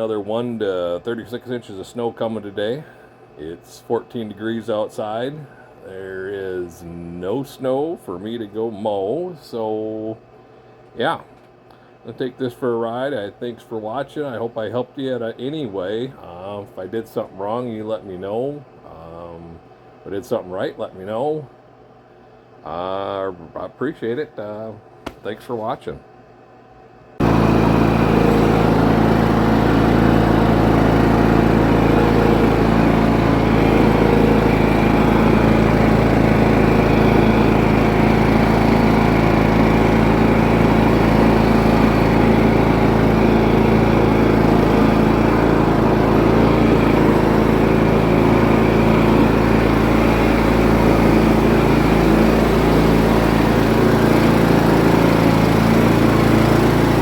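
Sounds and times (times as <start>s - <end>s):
lawn tractor engine running: 27.2s - 57.0s.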